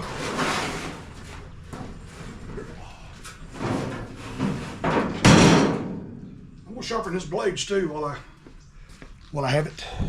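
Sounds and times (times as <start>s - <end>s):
heavy metal clatter: 3.4s - 6.5s
loud thud: 4.9s - 6.3s.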